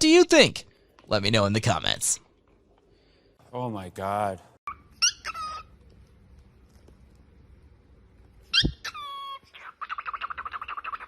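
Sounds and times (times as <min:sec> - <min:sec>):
animal calling: 0:04.7 - 0:05.7, 0:08.5 - 0:11.0.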